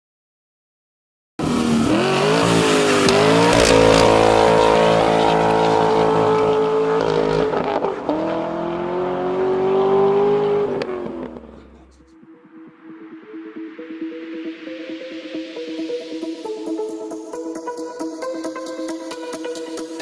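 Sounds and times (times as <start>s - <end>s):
car engine revving: 1.4s - 12.0s.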